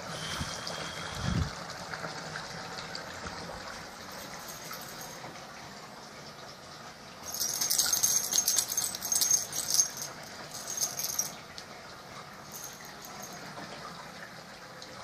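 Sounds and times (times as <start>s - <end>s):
small metal objects jingling: 4.2s - 5.2s, 7.2s - 11.4s, 12.5s - 13.4s.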